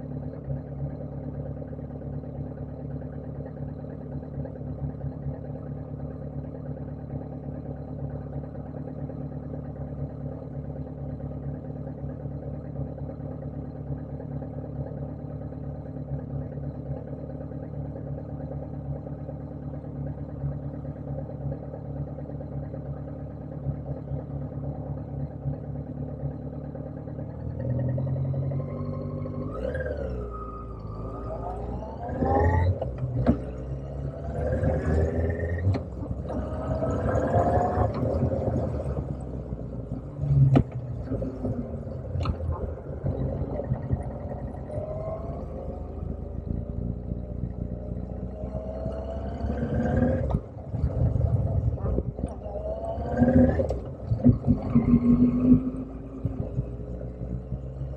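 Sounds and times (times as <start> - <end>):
motorcycle engine revving: 27.5 - 57.9.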